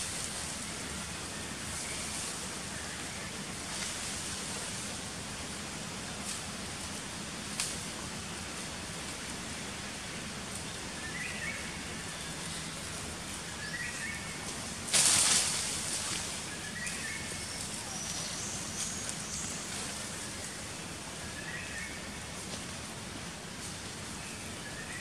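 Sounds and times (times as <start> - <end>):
steady hiss: 0.0 - 25.0
burst of rustling: 14.9 - 16.3.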